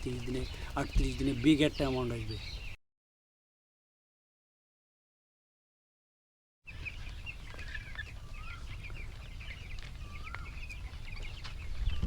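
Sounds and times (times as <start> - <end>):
chicks peeping: 0.0 - 2.8, 6.7 - 12.0.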